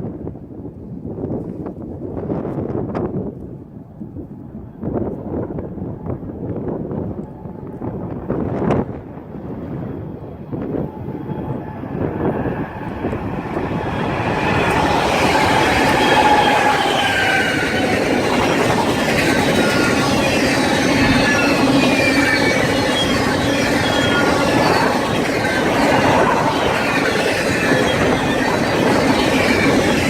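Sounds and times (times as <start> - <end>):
train wheels rolling on rails: 6.8 - 30.0
high wheel squealing: 9.6 - 30.0.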